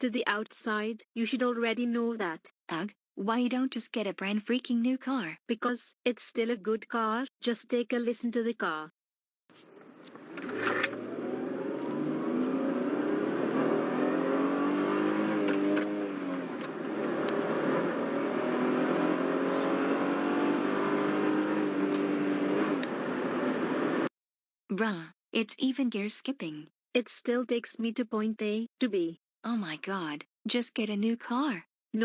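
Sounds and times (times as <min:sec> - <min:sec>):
car engine accelerating: 0:09.6 - 0:24.1.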